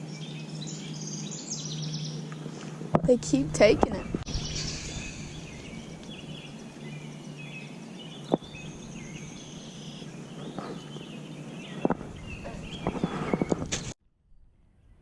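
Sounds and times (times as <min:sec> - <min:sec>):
birds chirping: 0:00.0 - 0:13.8
steady low hum: 0:00.0 - 0:13.9.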